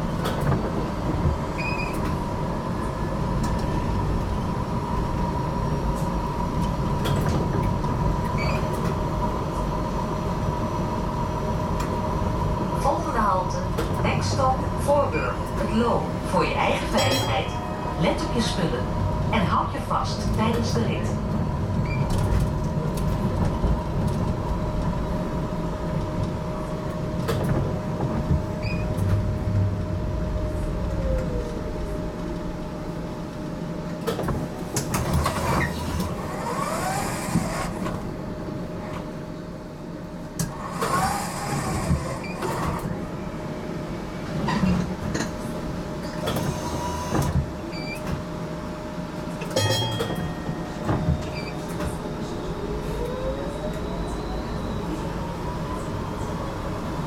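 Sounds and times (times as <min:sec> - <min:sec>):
tram wheels rumbling on rails: 0:00.0 - 0:57.0
tram wheels squealing: 0:49.6 - 0:56.6.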